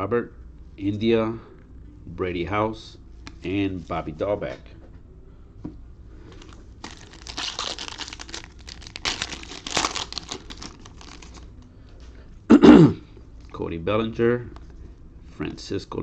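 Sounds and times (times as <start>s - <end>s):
foil wrapper crinkling and tearing: 6.4s - 11.6s.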